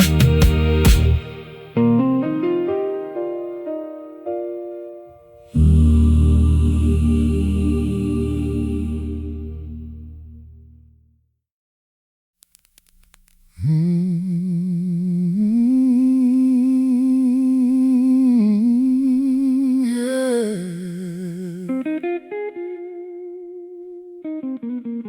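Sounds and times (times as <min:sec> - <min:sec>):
person humming with vibrato: 0:05.5 - 0:09.7, 0:13.5 - 0:22.0
plucked guitar notes: 0:21.7 - 0:25.0.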